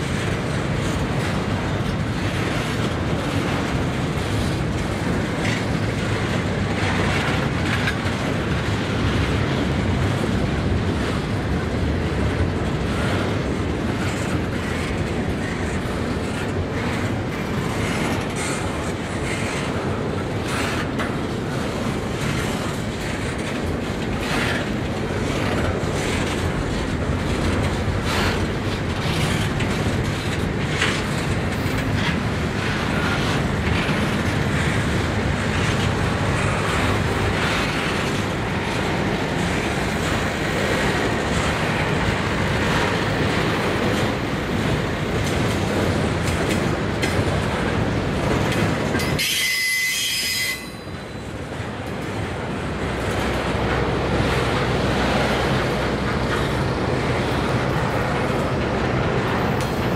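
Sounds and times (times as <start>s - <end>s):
freight train wheels rumbling: 0.0s - 59.9s
wheels clicking over rail joints: 0.0s - 59.9s
high wheel squeal: 49.1s - 51.0s.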